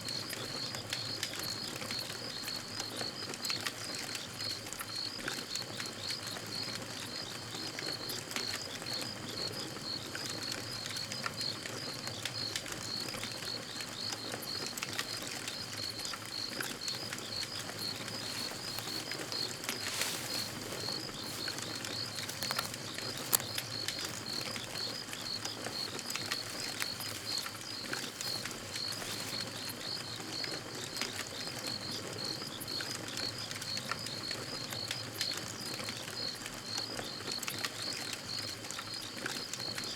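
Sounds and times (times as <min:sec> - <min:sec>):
crackling campfire: 0:00.0 - 0:39.9
crickets chirping: 0:00.0 - 0:39.9
fire pops: 0:12.2 - 0:30.2.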